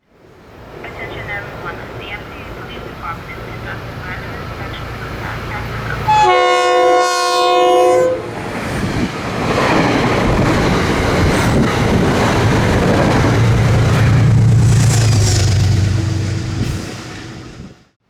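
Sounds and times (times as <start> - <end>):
multi-chime train air horn: 6.1 - 8.3
train wheels on rails: 8.3 - 17.8.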